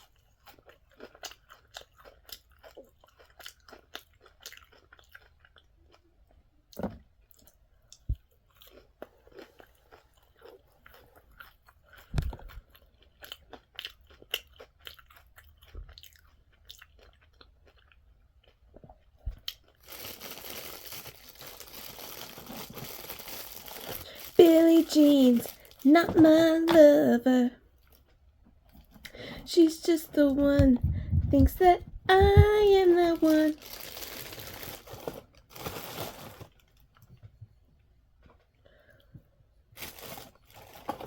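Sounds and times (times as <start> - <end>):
chewing crunchy fried food: 0.0 - 24.4, 25.5 - 25.9, 27.6 - 29.4
paper wrapper rustling: 19.8 - 26.7, 32.2 - 36.8, 39.8 - 41.0.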